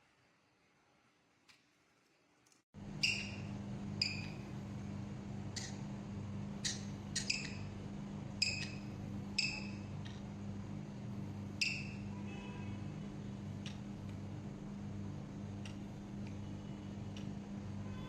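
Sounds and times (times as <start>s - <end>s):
low electrical hum: 0.0s - 18.0s
parrot chirping: 3.0s - 4.3s, 6.6s - 7.7s, 11.6s - 12.0s.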